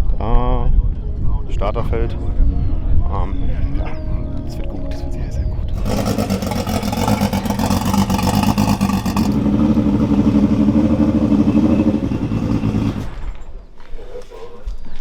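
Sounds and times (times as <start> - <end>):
crackling car exhaust: 5.7 - 13.3.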